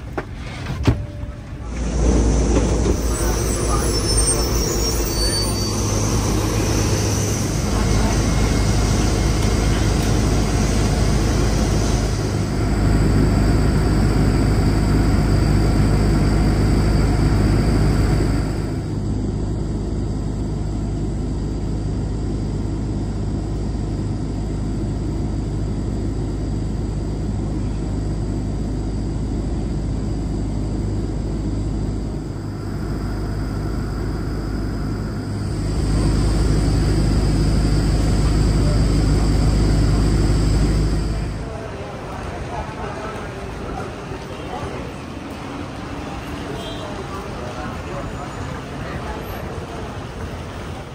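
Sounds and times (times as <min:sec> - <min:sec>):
airliner cabin rumble and hiss: 0:00.0 - 0:50.9
faint voices: 0:01.0 - 0:12.6, 0:32.2 - 0:50.9.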